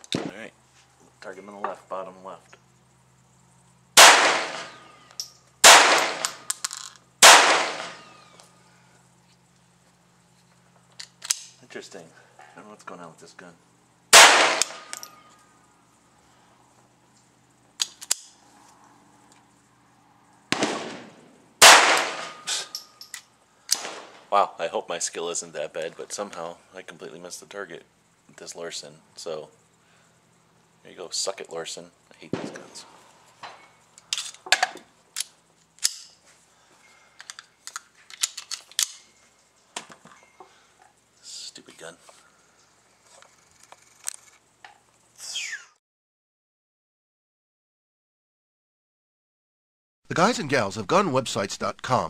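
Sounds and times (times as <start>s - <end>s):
pistol shot: 4.0s - 4.9s, 5.6s - 6.5s, 7.2s - 8.2s, 14.1s - 15.0s, 20.5s - 22.5s, 23.7s - 24.2s
pistol clicks and clacks: 11.0s - 11.6s, 17.8s - 18.4s, 34.2s - 36.2s, 37.2s - 39.1s.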